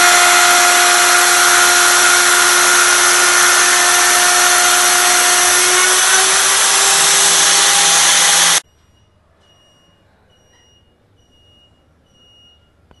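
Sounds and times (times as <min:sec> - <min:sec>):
router spindle milling wood: 0:00.0 - 0:08.6.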